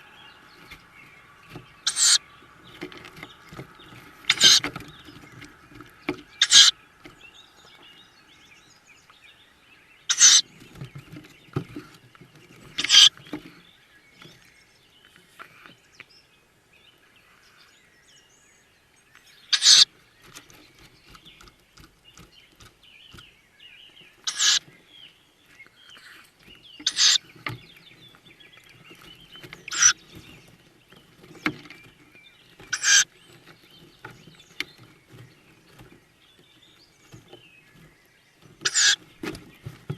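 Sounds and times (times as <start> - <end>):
owl chicks hissing begging calls: 0.0 - 3.2, 4.0 - 5.1, 6.3 - 6.8, 10.1 - 10.5, 12.7 - 13.2, 19.5 - 20.0, 24.2 - 24.7, 25.8 - 27.3, 29.6 - 30.2, 32.7 - 33.2, 38.6 - 39.1
scuffling in nest box: 0.0 - 7.9, 26.2 - 39.9
faint birdsong: 0.0 - 39.9.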